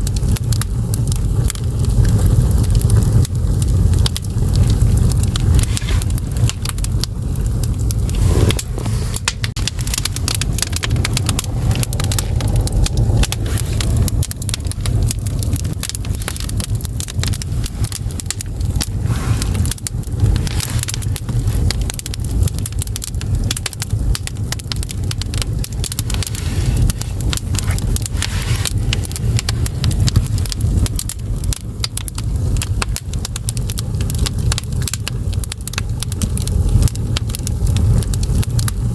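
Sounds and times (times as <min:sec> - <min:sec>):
firewood crackling and popping: 0:00.0 - 0:38.9
low fire rumble: 0:00.0 - 0:38.9.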